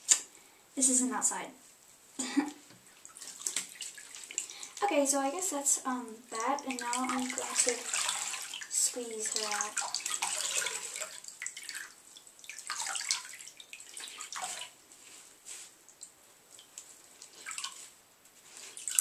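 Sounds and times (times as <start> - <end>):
water splashing and dripping: 2.9 - 5.0, 6.3 - 14.8, 15.8 - 17.9, 18.7 - 19.0.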